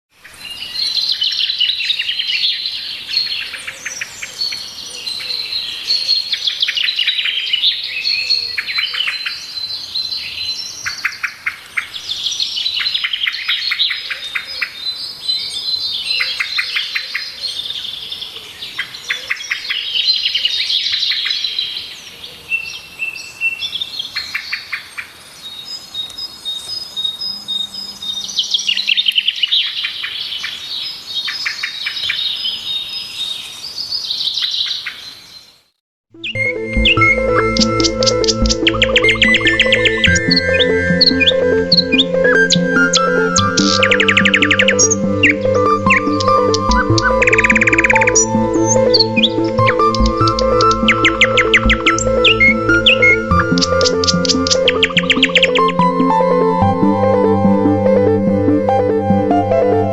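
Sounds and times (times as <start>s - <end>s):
songbirds chirping and singing: 0.2s - 35.6s, 36.2s - 59.9s
quick bird trills: 43.4s - 55.7s.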